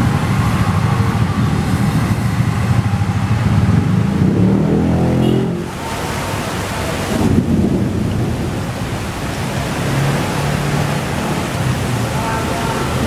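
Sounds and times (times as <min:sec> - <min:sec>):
heavy rain: 0:00.0 - 0:13.0
thunder rumbling: 0:07.1 - 0:09.1.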